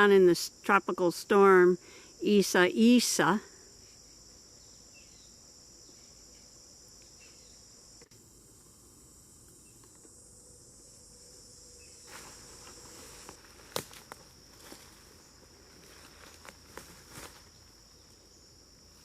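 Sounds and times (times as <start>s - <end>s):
high-pitched insect chorus: 0.0s - 19.0s
rustling footsteps: 12.0s - 17.8s.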